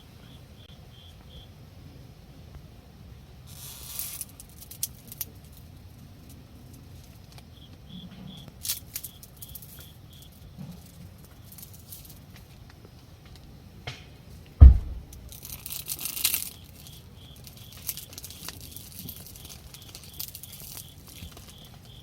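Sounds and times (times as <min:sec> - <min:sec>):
sharp clicks: 0:14.6 - 0:15.3
faint rustling: 0:14.6 - 0:15.6.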